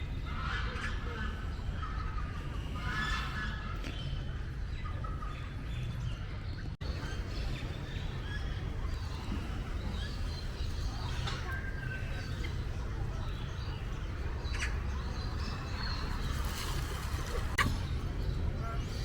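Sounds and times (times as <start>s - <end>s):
birds chirping and calling: 6.8s - 19.0s
steady low rumble: 6.8s - 19.0s.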